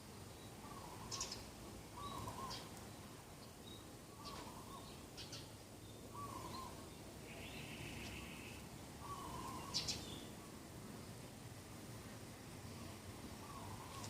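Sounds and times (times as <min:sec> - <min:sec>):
bird low call: 0:02.0 - 0:02.7, 0:06.1 - 0:10.3, 0:12.8 - 0:14.0.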